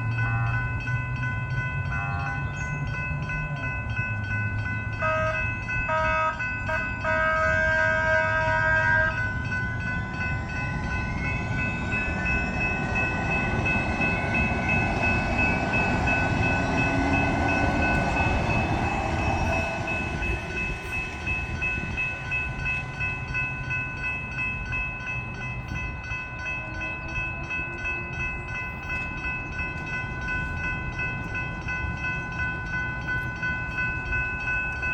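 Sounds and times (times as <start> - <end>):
crossing bells ringing: 0.0 - 34.9
train passing: 0.0 - 34.9
train horn: 0.2 - 0.8, 1.9 - 2.6, 5.0 - 9.4.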